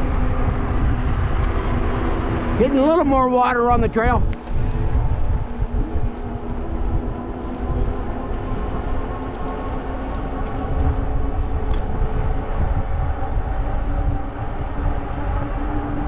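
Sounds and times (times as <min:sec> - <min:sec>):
wind buffeting microphone: 0:00.0 - 0:16.0
tyres rolling on trail: 0:04.2 - 0:16.0.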